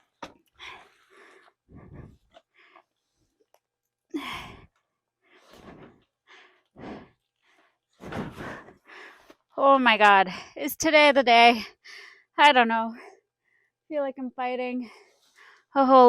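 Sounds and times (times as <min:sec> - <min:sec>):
person breathing hard: 0:00.6 - 0:02.9, 0:04.2 - 0:09.3.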